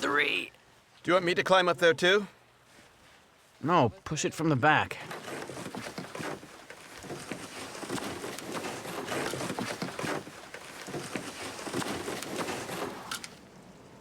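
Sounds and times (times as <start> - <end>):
kayak hull scraping on ice: 5.0 - 13.3.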